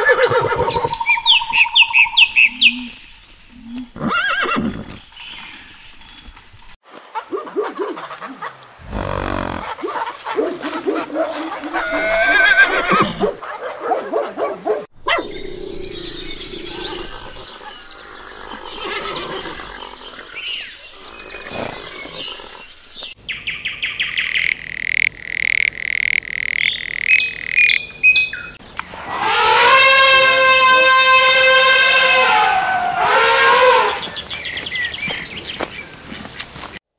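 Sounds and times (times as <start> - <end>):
horse whinnying: 4.0 - 4.9, 8.8 - 9.8, 11.6 - 13.4, 18.4 - 20.5, 29.1 - 34.1
elephant trumpeting: 8.8 - 10.1, 10.7 - 13.4, 28.9 - 34.2.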